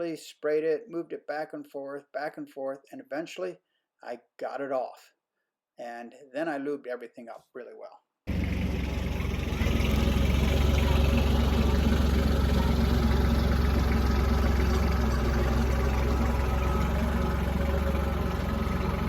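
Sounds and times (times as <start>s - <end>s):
tractor diesel engine idling: 8.3s - 19.0s.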